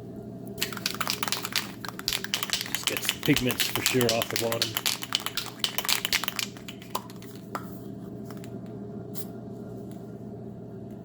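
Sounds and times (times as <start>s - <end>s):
spray can rattling: 0.6s - 7.7s.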